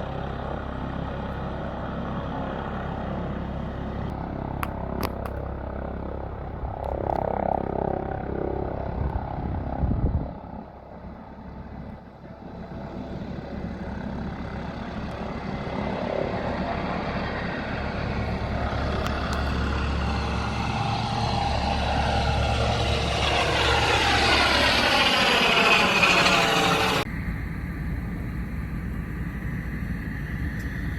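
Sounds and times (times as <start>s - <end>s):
aircraft engine noise: 0.0s - 30.9s.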